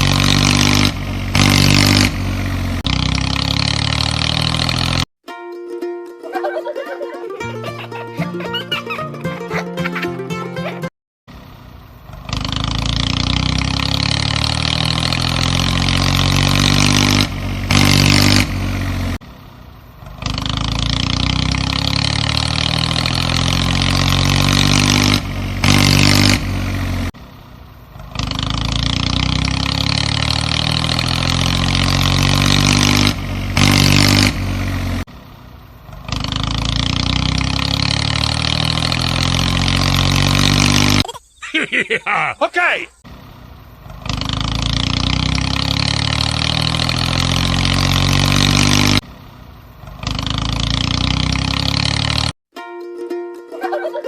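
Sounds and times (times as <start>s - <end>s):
engine idling and revving: 0.0s - 5.1s, 11.3s - 41.1s, 43.0s - 52.4s.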